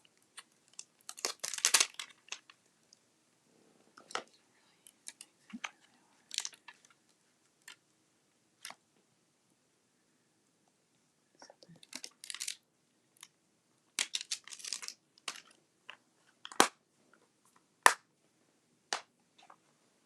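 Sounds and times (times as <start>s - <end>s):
paper rustling and crinkling: 0.7s - 2.6s, 6.3s - 7.0s, 14.0s - 15.6s.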